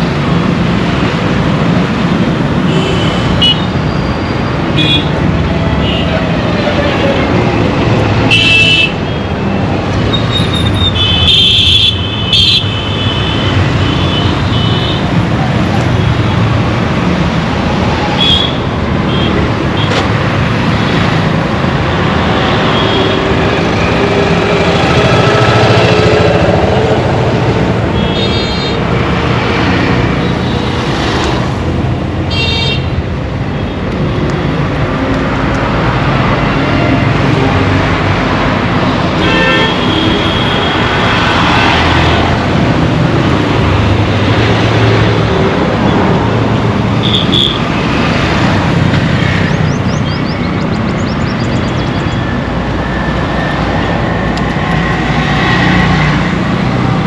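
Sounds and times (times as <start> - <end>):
road traffic rumble: 0.0 - 57.0
vehicle horns honking: 39.2 - 41.0, 47.0 - 47.7.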